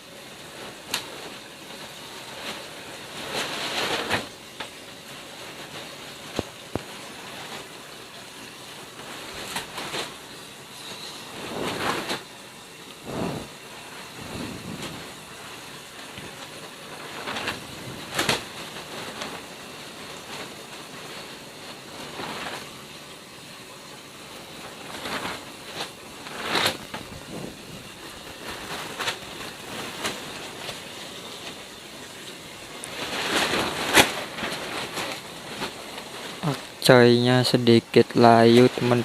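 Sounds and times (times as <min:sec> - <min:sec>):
plastic film flapping in wind: 0:00.0 - 0:39.0
plastic sheet snapping: 0:16.0 - 0:20.4, 0:32.8 - 0:36.6.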